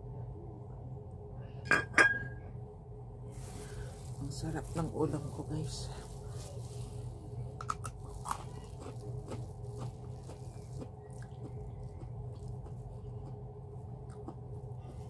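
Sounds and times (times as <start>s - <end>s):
steady low hum: 0.0s - 15.0s
chewing and crunching carrot: 6.0s - 15.0s.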